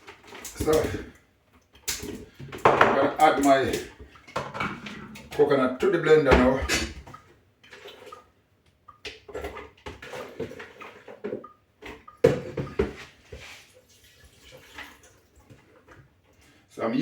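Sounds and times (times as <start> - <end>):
coconut water splashing: 0.0 - 1.2, 1.8 - 15.8
coconut pieces clattering into blender: 2.6 - 4.9.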